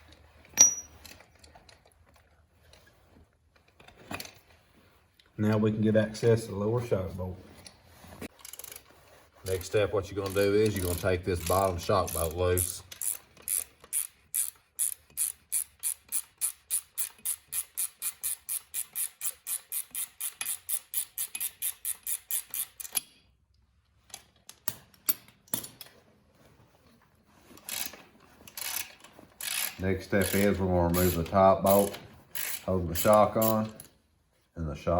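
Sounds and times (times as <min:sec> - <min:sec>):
ratchet wrench clicking: 0:10.2 - 0:23.2, 0:27.7 - 0:33.9.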